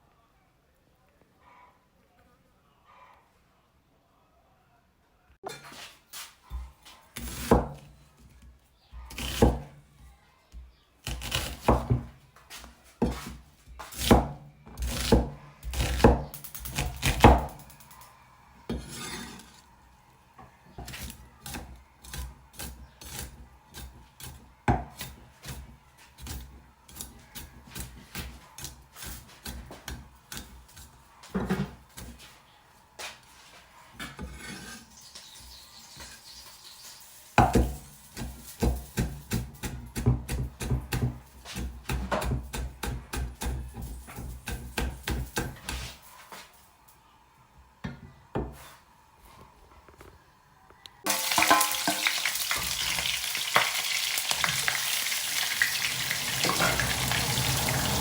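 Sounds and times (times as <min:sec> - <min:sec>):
knife chopping on wooden board: 0:06.6 - 0:07.8, 0:09.1 - 0:09.7, 0:11.0 - 0:12.1, 0:13.0 - 0:17.6, 0:37.4 - 0:45.8.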